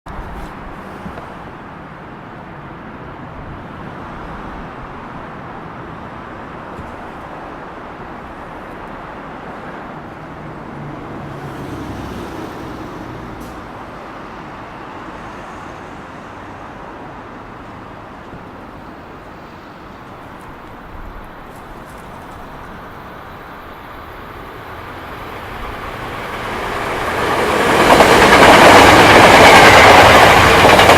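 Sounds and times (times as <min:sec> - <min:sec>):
electric train rumbling: 0:00.2 - 0:30.9.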